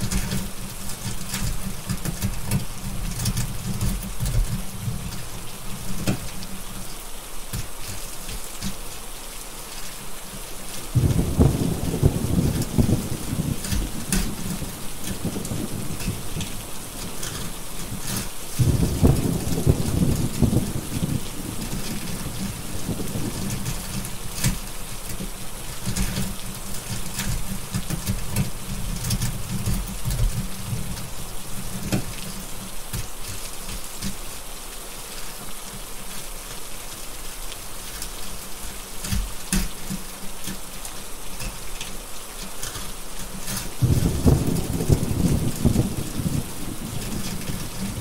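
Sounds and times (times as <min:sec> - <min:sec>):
steady rain: 0:00.0 - 0:48.0
wood fire crackling: 0:00.0 - 0:48.0
rolling thunder: 0:10.9 - 0:24.7, 0:43.7 - 0:48.0.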